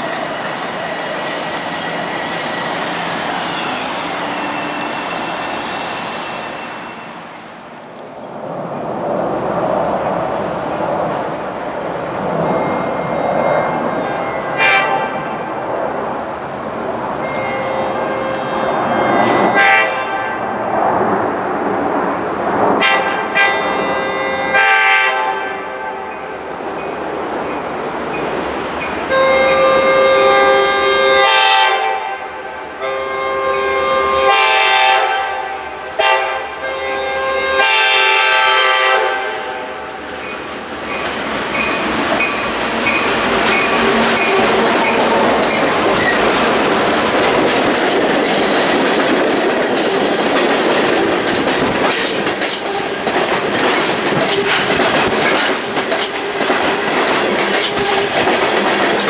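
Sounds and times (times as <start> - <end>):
wheel squeal: 0.0 - 7.6
train wheel rumble: 0.0 - 36.2, 37.0 - 59.0
locomotive horn blasts: 14.0 - 15.3, 17.2 - 20.4, 22.8 - 26.0, 29.1 - 39.6
clickety-clack over rail joints: 40.1 - 59.0.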